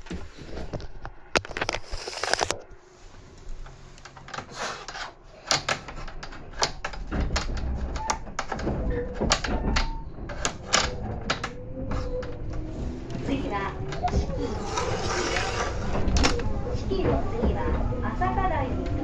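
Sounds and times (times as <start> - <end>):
sharp clicks and knocks: 3.6 - 14.9
train rumble from inside: 7.0 - 19.0.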